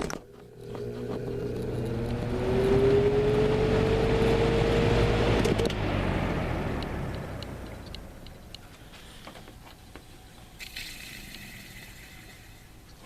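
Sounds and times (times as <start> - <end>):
fan motor hum: 0.0 - 13.0.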